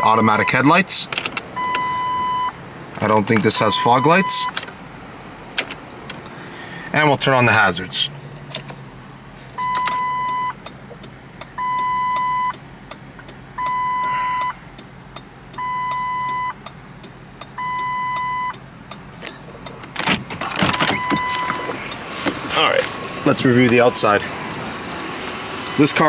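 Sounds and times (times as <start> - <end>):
dashboard warning chime: 0.0 - 1.0, 1.6 - 4.6, 9.6 - 10.7, 11.5 - 12.6, 13.6 - 14.6, 15.5 - 16.8, 17.4 - 18.6, 20.5 - 26.0.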